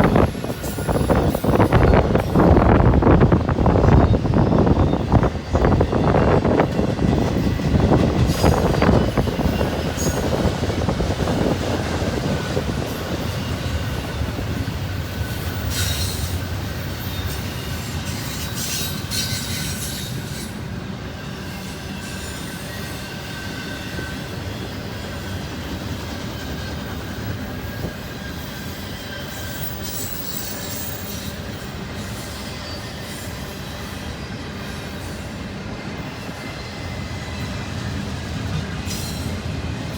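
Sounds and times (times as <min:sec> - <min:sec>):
train wheels rumbling on rails: 0:00.0 - 0:39.9
wheel squeal: 0:26.1 - 0:35.3.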